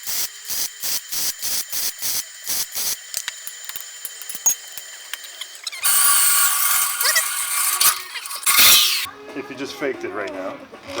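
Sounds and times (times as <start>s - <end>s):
hand tool scraping workpiece: 5.2s - 9.1s.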